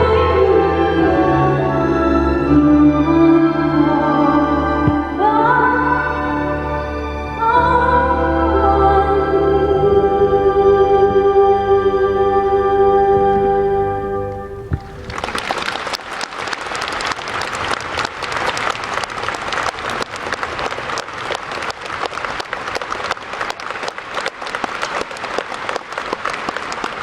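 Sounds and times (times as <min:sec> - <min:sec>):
held music chord: 0:00.0 - 0:15.1
audience applauding: 0:14.7 - 0:27.0.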